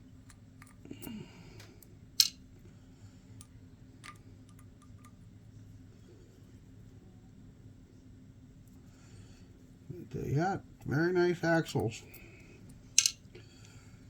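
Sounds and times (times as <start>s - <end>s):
screws dropped into a tray: 13.0s - 13.2s
small metal screws clicking: 13.0s - 13.2s.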